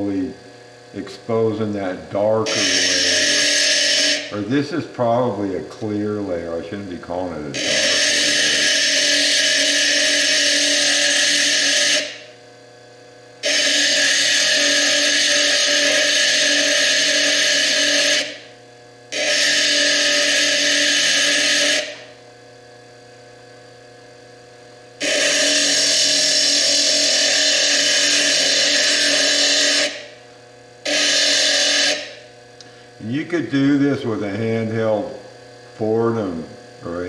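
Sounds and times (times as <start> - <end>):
lathe grinding stone: 0.0 - 12.4, 13.4 - 18.5, 19.1 - 22.2, 25.0 - 30.2, 30.8 - 32.3
motor hum: 0.0 - 37.0.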